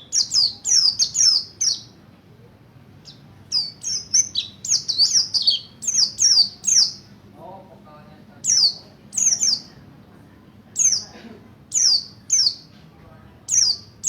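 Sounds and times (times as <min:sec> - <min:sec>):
bird singing high chirps: 0:00.0 - 0:02.0, 0:03.0 - 0:07.2, 0:08.4 - 0:09.8, 0:10.7 - 0:12.7, 0:13.5 - 0:14.0.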